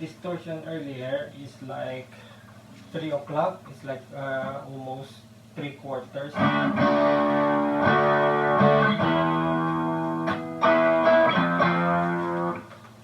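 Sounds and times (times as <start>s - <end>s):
heavily distorted electric guitar chords: 6.4s - 12.8s.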